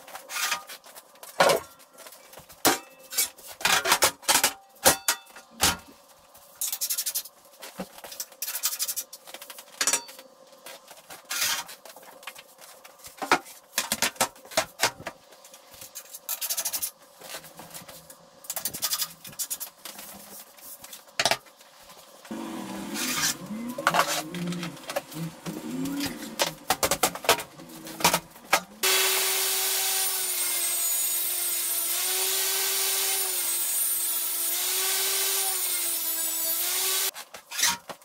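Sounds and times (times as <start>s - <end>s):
rasping scraping strokes: 22.3s - 26.6s.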